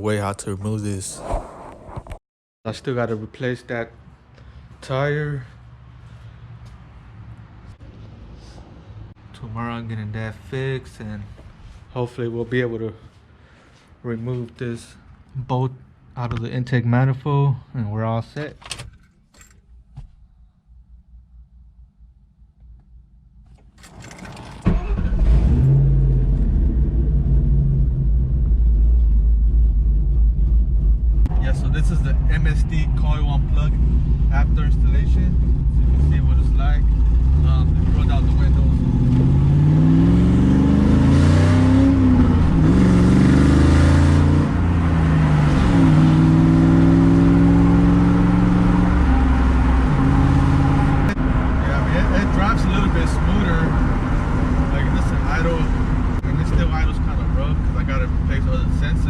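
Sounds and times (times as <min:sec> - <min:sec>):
car engine accelerating: 0:24.7 - 0:59.0.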